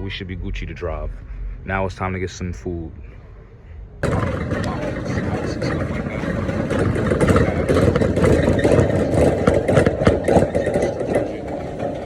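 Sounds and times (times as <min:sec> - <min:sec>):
road noise: 0:00.0 - 0:12.0
car engine running: 0:04.0 - 0:12.0
clattering knocks: 0:04.0 - 0:12.0.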